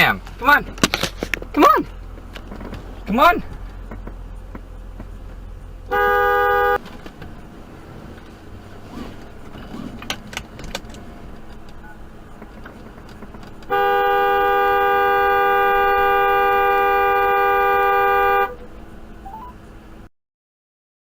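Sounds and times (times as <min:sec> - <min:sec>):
light road noise: 0:00.0 - 0:20.1
car horn long blast: 0:05.9 - 0:06.9, 0:13.6 - 0:18.7.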